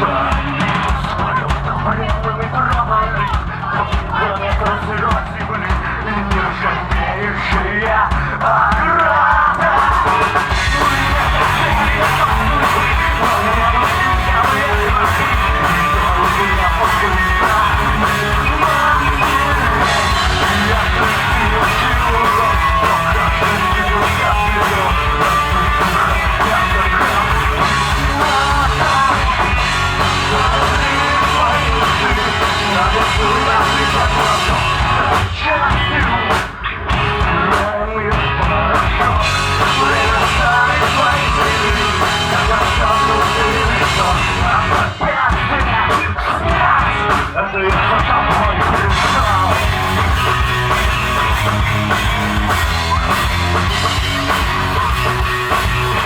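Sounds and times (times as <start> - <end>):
sung and shouted vocals: 0.0 - 51.9
rock band playing live: 0.0 - 56.0.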